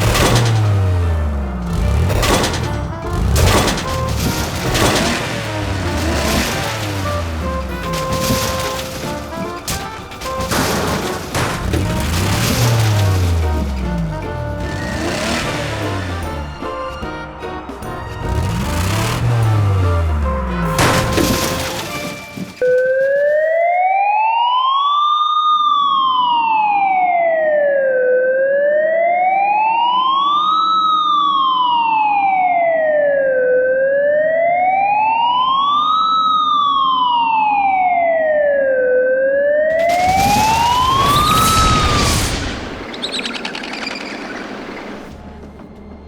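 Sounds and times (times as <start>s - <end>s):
emergency siren wailing: 0.0s - 21.4s, 22.6s - 43.9s
burst of noise: 39.7s - 45.2s.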